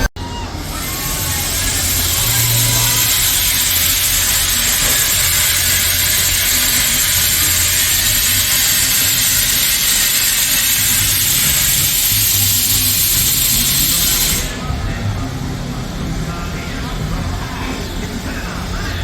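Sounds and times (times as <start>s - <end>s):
steam locomotive hissing: 0.0s - 19.0s.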